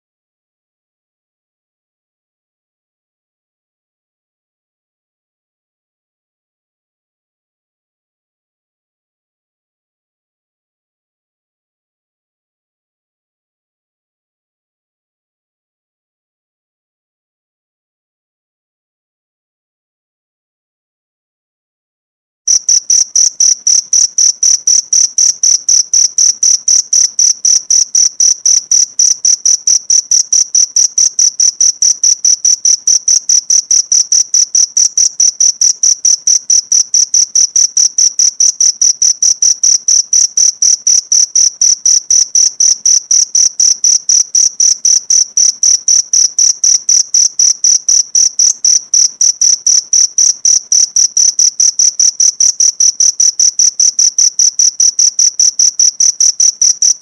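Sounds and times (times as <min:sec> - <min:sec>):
cricket chirping: 0:22.5 - 0:57.0.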